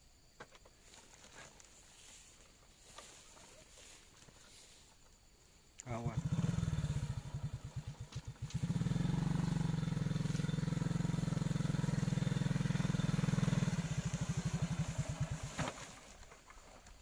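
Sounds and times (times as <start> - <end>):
small motorcycle engine revving: 5.9 - 16.2.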